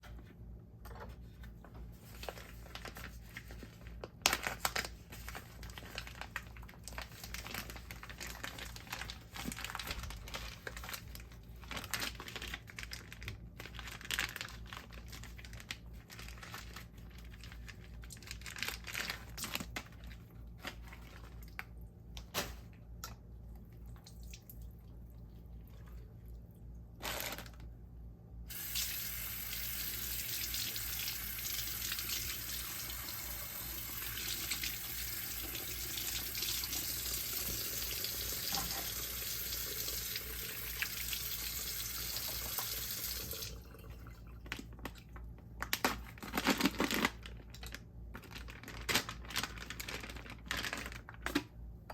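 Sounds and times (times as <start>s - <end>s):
wrapping crinkling and tearing: 2.0s - 22.8s, 27.0s - 27.7s, 44.4s - 51.6s
kitchen tap running: 28.5s - 44.3s.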